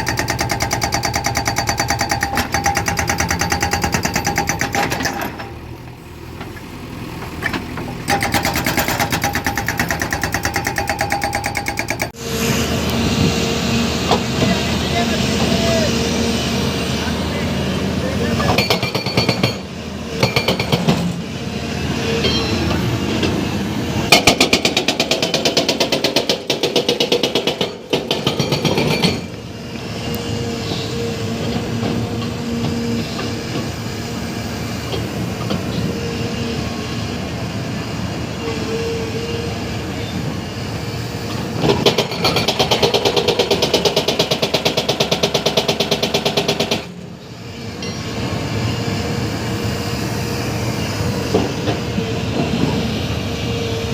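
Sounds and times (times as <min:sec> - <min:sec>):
hydraulic breaker hammering concrete: 0:00.0 - 0:05.8, 0:07.3 - 0:12.2, 0:18.4 - 0:21.1, 0:24.1 - 0:29.3, 0:41.6 - 0:47.0
excavator engine running: 0:00.0 - 0:14.4.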